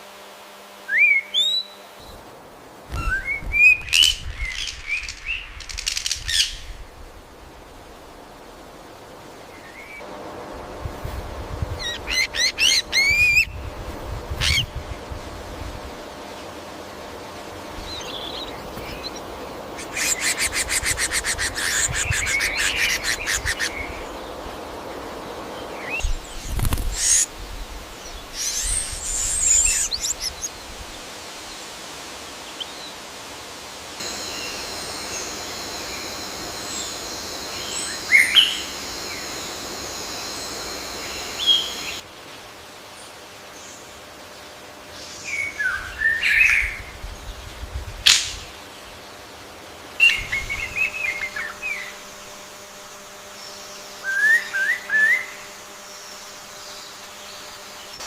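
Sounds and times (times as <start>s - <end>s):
birds chirping: 2.9s - 6.9s, 17.5s - 31.1s, 34.0s - 42.0s
bird trill: 34.0s - 42.0s
high-pitched drone: 34.0s - 42.0s.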